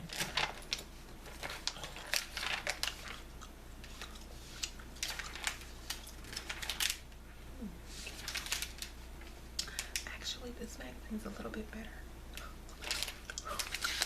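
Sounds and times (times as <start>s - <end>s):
magazine pages rustling: 0.0s - 7.1s, 7.9s - 10.0s, 12.8s - 14.0s.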